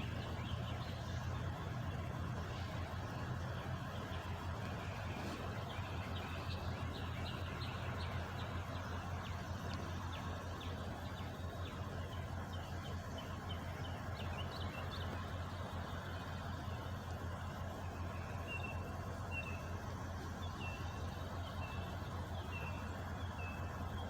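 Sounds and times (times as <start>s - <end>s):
birds chirping: 0.0s - 24.0s
truck engine idling: 0.0s - 24.0s.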